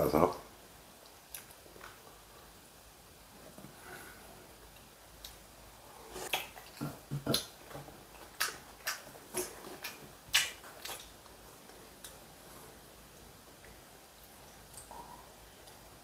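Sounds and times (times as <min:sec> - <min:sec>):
person chewing: 0:06.1 - 0:11.2
sharp mouth clicks and smacks: 0:08.2 - 0:11.1.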